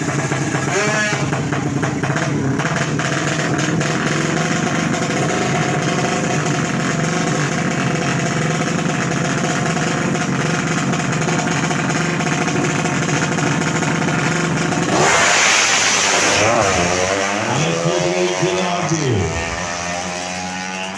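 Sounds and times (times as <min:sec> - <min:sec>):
motorcycle engine idling: 0:00.0 - 0:15.1.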